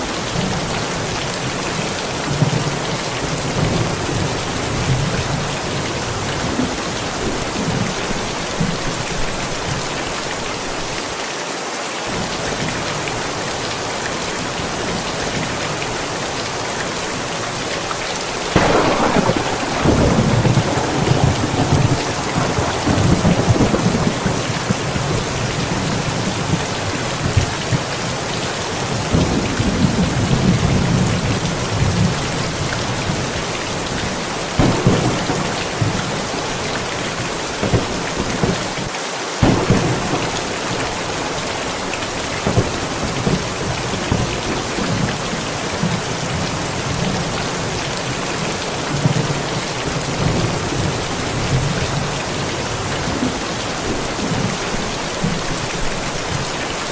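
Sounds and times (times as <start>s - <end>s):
heavy rain: 0.0s - 56.9s
sharp thunder cracks: 18.5s - 27.8s, 34.5s - 38.8s, 39.4s - 45.2s
rolling thunder rumbles: 18.5s - 38.8s, 39.4s - 56.5s.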